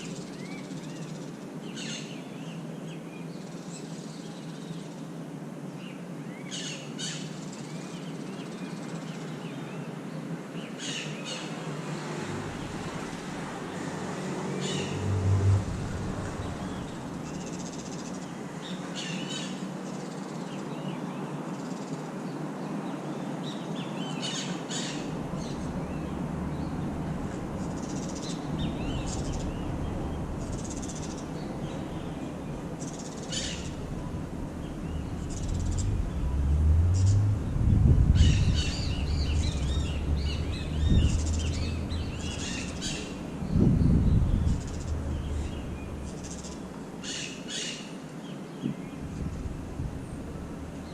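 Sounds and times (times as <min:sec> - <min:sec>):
birds chirping: 0:10.6 - 0:19.6, 0:23.5 - 0:50.9
low rumbles: 0:12.3 - 0:17.8, 0:24.9 - 0:47.2, 0:48.7 - 0:50.9.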